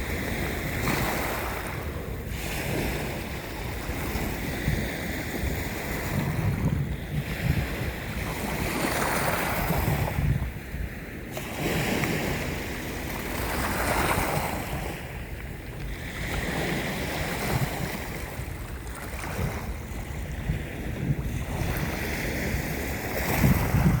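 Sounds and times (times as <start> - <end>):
sea waves washing: 0.0 - 24.0
wind on microphone: 0.0 - 24.0.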